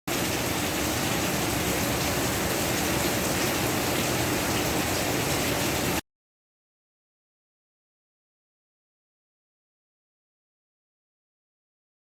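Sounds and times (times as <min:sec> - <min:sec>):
steady rain falling: 0:00.1 - 0:06.0.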